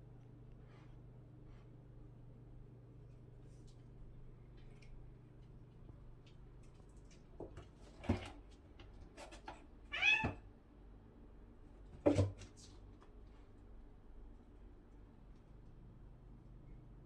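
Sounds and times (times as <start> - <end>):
cat meowing: 9.9 - 10.4.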